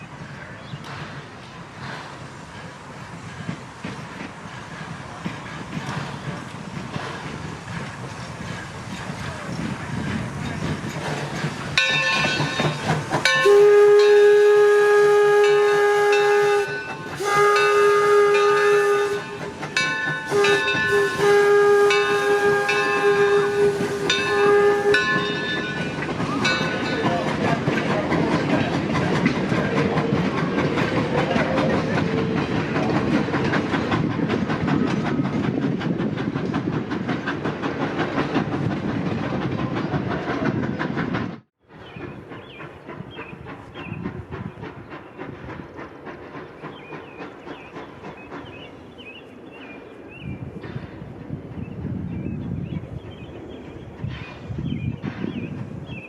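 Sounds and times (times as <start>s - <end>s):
train rumble and rail clatter: 0.0s - 56.0s
steam locomotive whistle: 13.3s - 26.8s.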